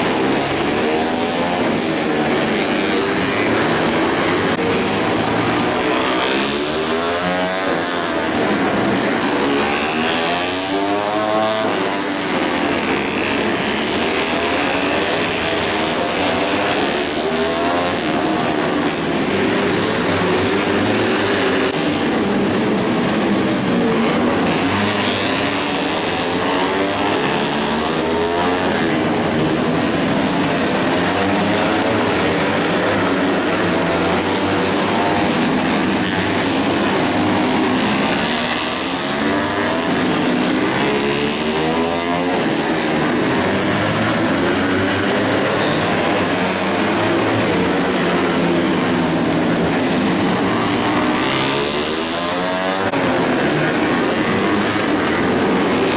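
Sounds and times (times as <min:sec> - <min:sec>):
racing motorcycle engines passing: 0:00.0 - 0:55.9.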